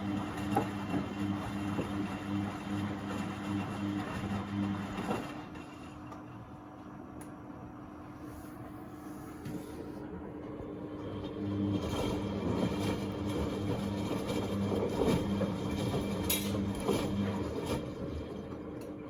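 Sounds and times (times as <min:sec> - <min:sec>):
laundry and water tumbling: 0:00.0 - 0:05.4, 0:10.3 - 0:19.0.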